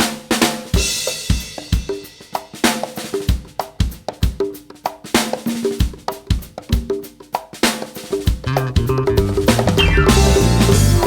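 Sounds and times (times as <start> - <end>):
drum kit groove: 0.0 - 11.0
short pitched instrument notes: 8.5 - 10.8
cymbal crash: 9.8 - 11.0.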